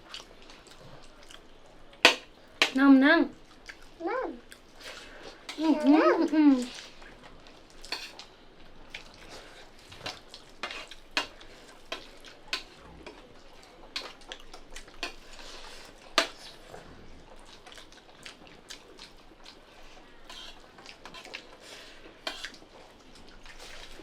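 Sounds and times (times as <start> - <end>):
utensils clinking on plates: 7.8 - 8.2, 9.9 - 13.3, 15.0 - 16.4, 20.3 - 21.4, 22.3 - 22.6.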